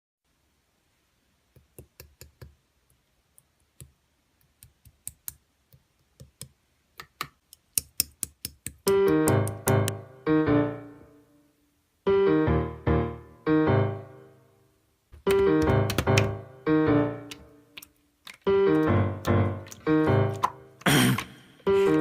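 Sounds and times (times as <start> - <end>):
sharp clicks and taps: 1.5 - 2.6, 3.3 - 10.0, 15.2 - 16.4, 17.2 - 21.3
piano chords: 8.9 - 22.0.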